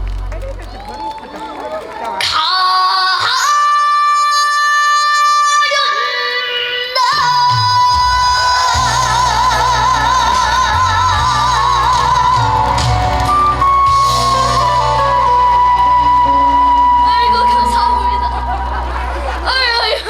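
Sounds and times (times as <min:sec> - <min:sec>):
boy singing with vibrato: 0:02.4 - 0:15.2
band backing track: 0:07.0 - 0:20.0.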